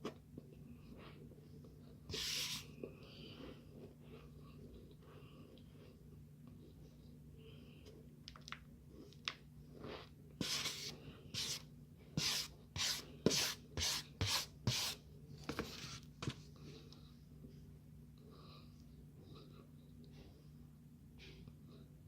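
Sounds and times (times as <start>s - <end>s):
starch rubbed and scraped: 2.1s - 2.7s, 10.4s - 11.6s, 12.2s - 15.0s.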